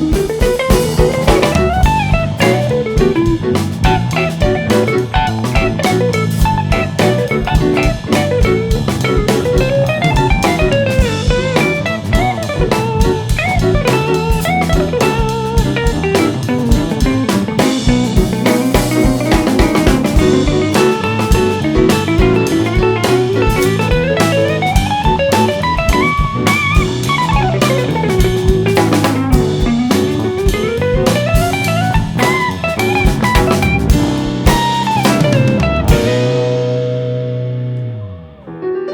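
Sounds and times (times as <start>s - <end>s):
drum kit beat: 0.0s - 38.5s
electric guitar solo: 34.6s - 38.9s.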